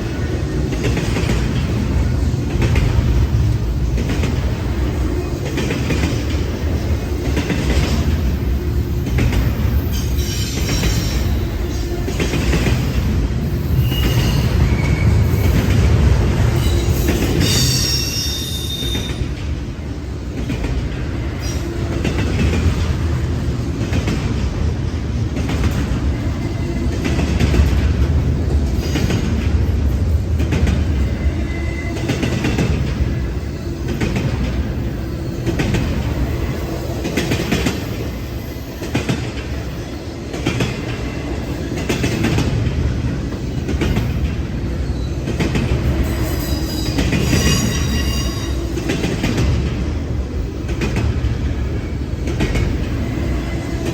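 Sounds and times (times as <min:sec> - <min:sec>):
train wheels rumbling: 0:00.0 - 0:53.9.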